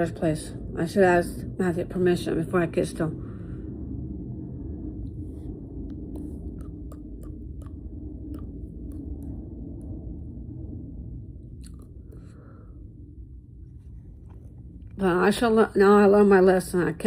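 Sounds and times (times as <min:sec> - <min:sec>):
steady low hum: 0:00.0 - 0:17.0
mouth chewing with wet clicks: 0:06.2 - 0:09.4, 0:11.6 - 0:12.0.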